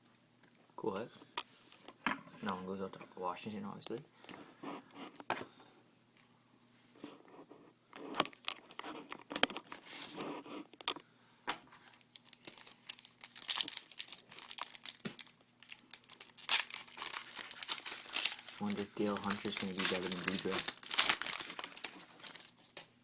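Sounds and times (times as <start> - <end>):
card pack wrapper crinkling and tearing: 11.8 - 23.0.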